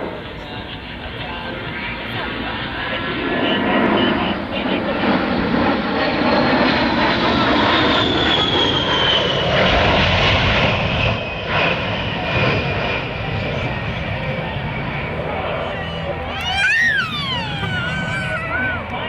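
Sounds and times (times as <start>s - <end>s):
high jet whine falling in pitch: 16.3s - 19.0s.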